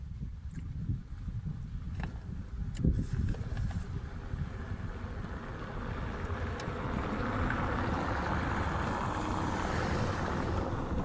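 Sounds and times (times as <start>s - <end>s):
wind rumble on microphone: 0.0s - 11.0s
vehicle passing: 3.8s - 11.0s.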